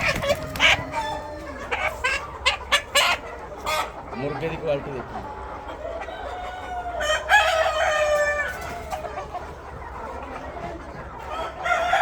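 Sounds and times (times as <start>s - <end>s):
roosters crowing: 0.0s - 3.2s, 5.8s - 9.2s, 11.2s - 12.0s
chickens clucking: 0.0s - 12.0s.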